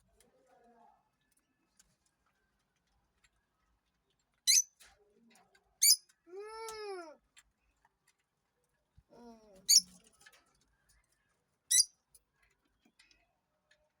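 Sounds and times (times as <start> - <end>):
parrot squawks: 4.5 - 4.7, 9.7 - 9.9.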